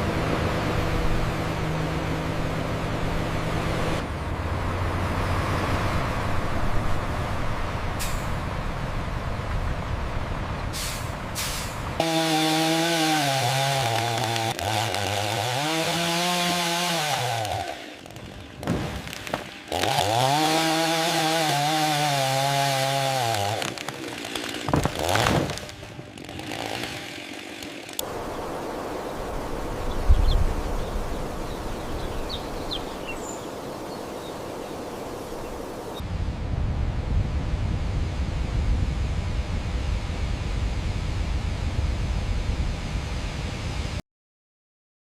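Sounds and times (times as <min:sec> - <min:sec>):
small engine saw running: 0:12.0 - 0:28.1.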